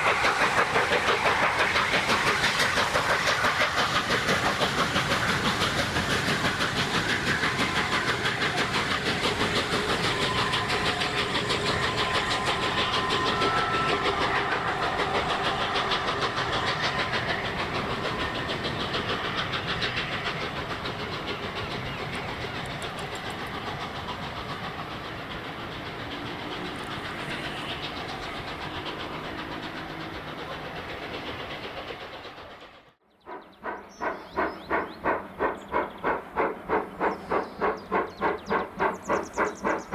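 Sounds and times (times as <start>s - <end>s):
rail noise: 0.0s - 39.9s
steam engine slow exhaust beats: 0.0s - 39.9s
steam locomotive rapid exhaust beats: 0.0s - 39.9s.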